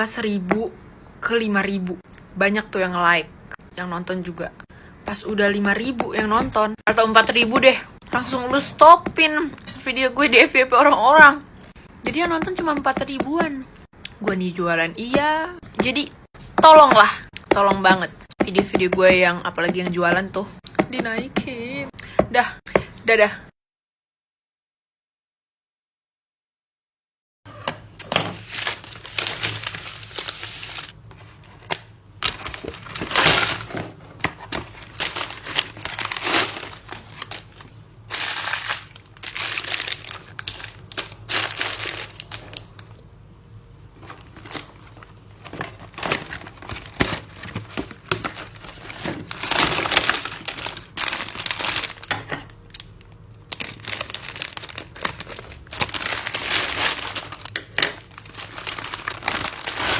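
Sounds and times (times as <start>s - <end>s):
packaging crinkling and rustling: 28.3s - 42.9s, 44.0s - 59.9s.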